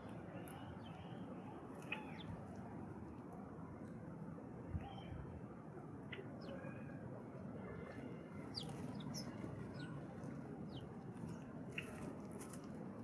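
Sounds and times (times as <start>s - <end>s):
birds chirping: 8.4s - 10.9s.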